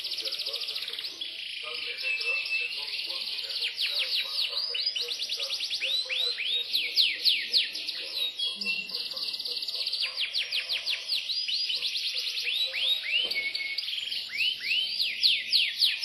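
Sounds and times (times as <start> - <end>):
canary singing trills: 0.0 - 16.0.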